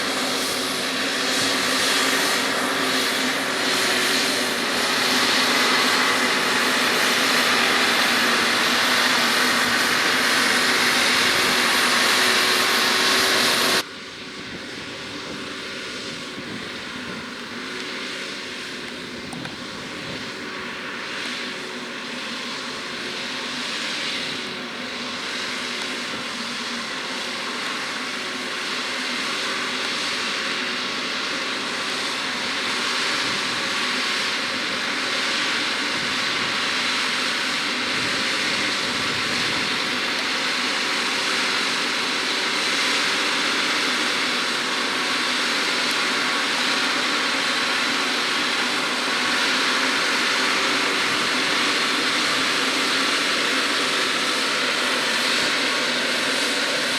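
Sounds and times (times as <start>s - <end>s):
tractor diesel engine running: 0.0s - 13.9s.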